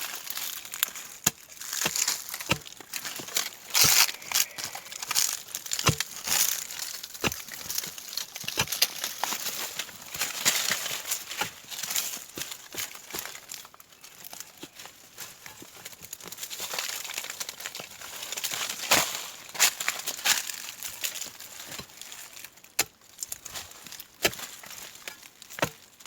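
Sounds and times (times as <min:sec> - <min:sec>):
crackling crumbling soil: 0:00.0 - 0:26.0
tool knocking in soil: 0:00.6 - 0:13.6, 0:23.8 - 0:25.9.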